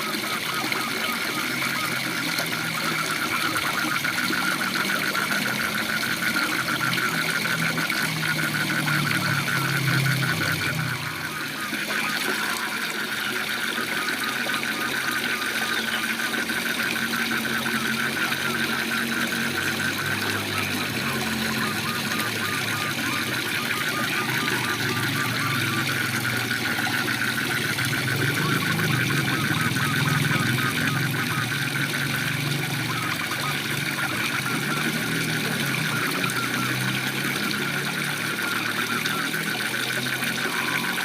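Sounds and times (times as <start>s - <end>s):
low frog croaking: 0.0s - 40.9s
frogs calling in pulsed trills: 0.0s - 41.0s.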